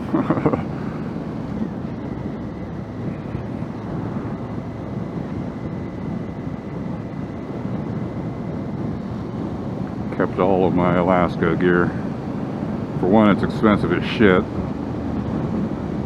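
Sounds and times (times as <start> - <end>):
motorcycle engine running: 0.0 - 11.0
faint high whine: 0.0 - 16.0
wind rushing over microphone: 0.0 - 16.0.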